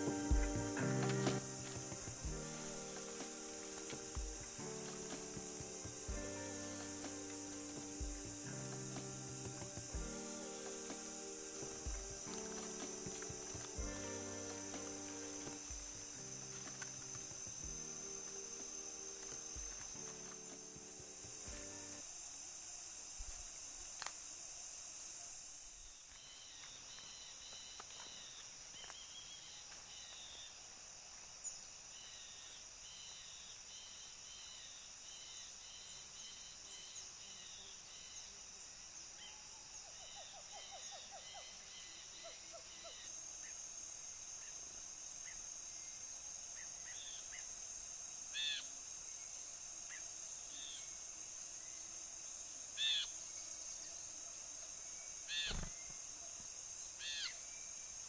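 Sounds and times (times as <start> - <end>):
bulbuls chirping: 0.0 - 22.0
high insect drone: 0.0 - 58.0.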